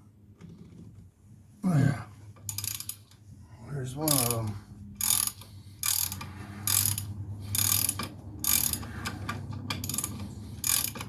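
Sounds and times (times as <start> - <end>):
ratchet wrench clicking: 2.5 - 3.2, 4.1 - 11.0.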